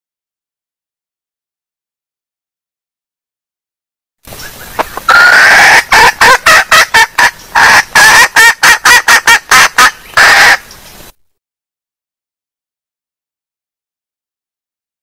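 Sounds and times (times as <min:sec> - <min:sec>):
hen clucking call: 0:04.4 - 0:10.7.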